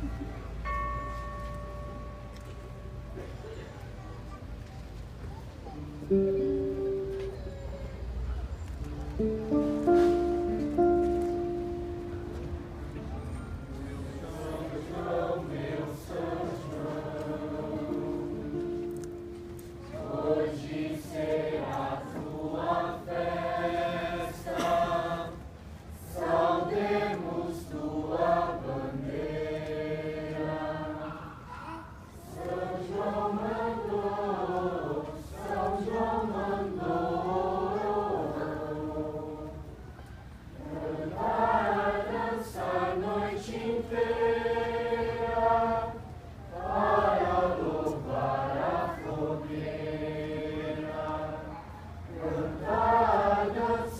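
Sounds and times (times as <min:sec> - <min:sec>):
choir singing: 0:13.7 - 0:31.4, 0:32.2 - 0:39.8, 0:40.5 - 0:53.9.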